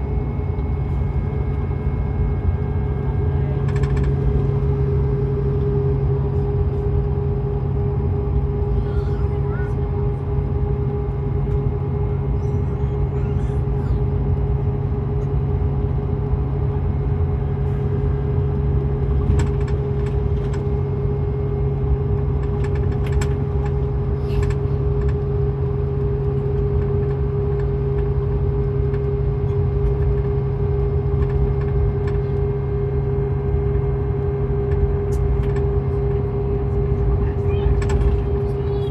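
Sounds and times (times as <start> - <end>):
coach engine drone: 0.0 - 38.9.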